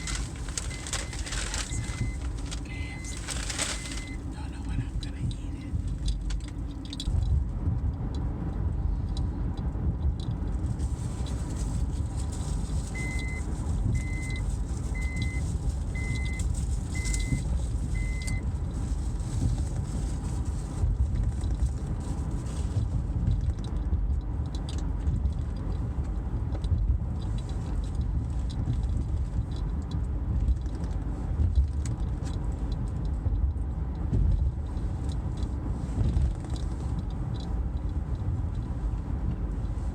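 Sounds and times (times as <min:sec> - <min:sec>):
car road noise rumble: 0:00.0 - 0:39.9
electronic beep: 0:01.7 - 0:02.2, 0:03.8 - 0:04.2.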